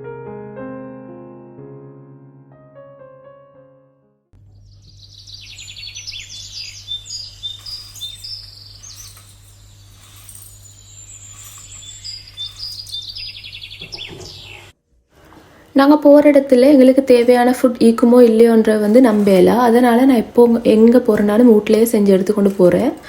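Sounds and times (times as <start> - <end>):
piano melody: 0.0 - 14.7
small birds chirping: 4.4 - 14.8
steady low hum: 4.4 - 15.7.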